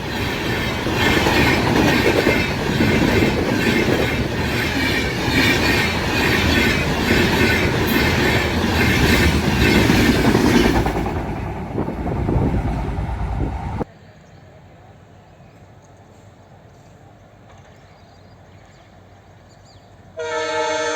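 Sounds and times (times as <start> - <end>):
train wheels clattering over rails: 0.0 - 13.9.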